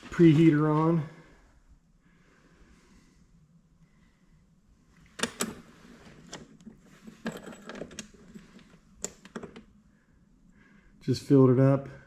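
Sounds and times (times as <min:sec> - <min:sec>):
sharp clicks of controls: 0:05.1 - 0:05.6.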